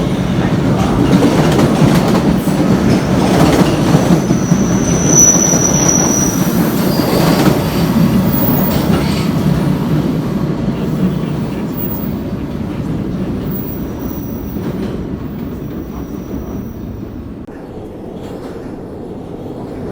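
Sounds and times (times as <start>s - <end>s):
train running on track: 0.0s - 19.9s
high-pitched wheel squeal: 4.2s - 7.4s.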